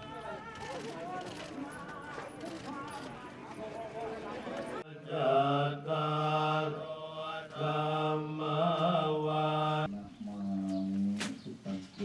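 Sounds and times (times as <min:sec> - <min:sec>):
monks chanting in unison: 0:04.8 - 0:09.9.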